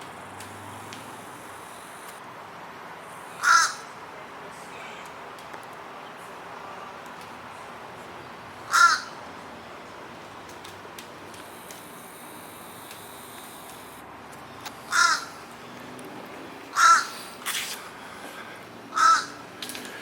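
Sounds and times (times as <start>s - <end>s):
bird harsh calls: 3.3s - 3.9s, 8.7s - 9.2s, 14.9s - 15.4s, 16.7s - 17.5s, 18.9s - 19.4s.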